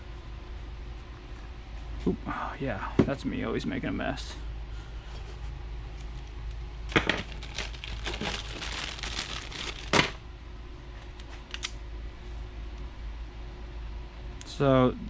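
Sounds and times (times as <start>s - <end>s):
crinkly sheet rustling: 7.2s - 10.2s.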